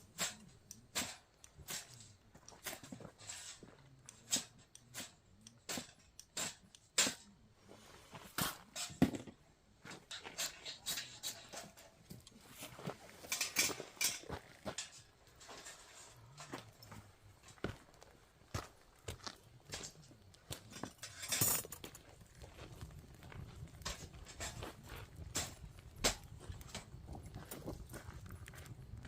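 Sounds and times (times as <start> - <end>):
burning wood popping and snapping: 0.0 - 7.3, 16.5 - 29.0
campfire crackling: 0.0 - 29.0.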